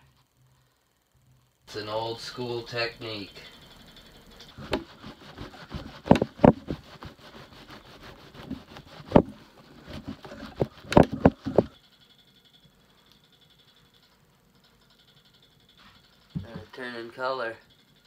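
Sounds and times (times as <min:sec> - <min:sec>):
candle scraping on cloth: 0:04.5 - 0:11.7
sharp handling knocks: 0:04.6 - 0:07.1, 0:08.4 - 0:11.7.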